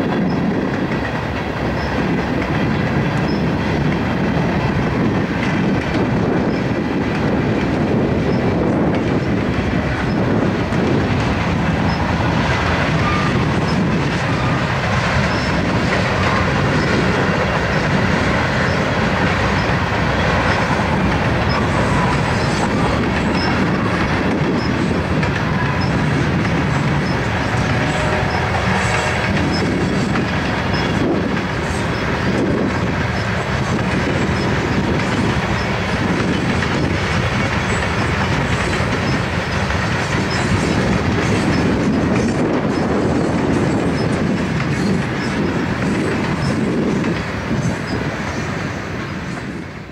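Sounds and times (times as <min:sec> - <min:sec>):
train wheels rumbling on rail: 0:00.0 - 0:49.9.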